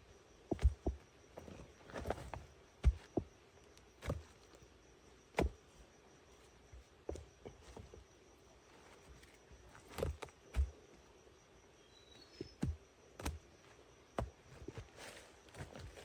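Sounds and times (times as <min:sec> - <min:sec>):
insects droning: 0:00.0 - 0:16.0
knocks and thuds: 0:00.5 - 0:01.6, 0:02.8 - 0:03.3.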